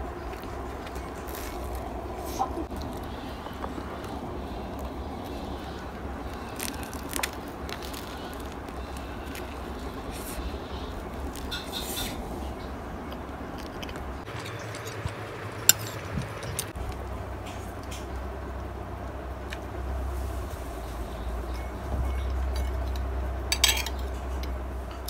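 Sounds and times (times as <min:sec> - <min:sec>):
steady low hum: 0:00.0 - 0:25.0
croissant crackling being pulled apart: 0:00.3 - 0:12.2.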